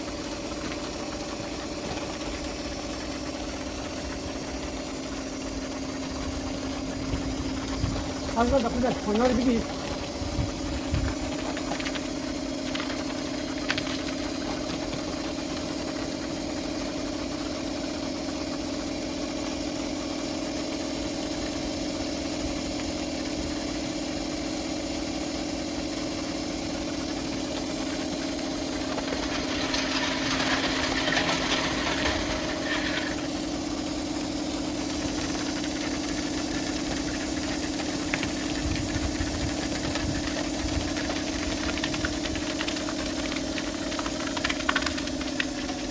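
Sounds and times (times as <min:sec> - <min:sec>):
pressure washer motor hum: 0:00.0 - 0:45.9.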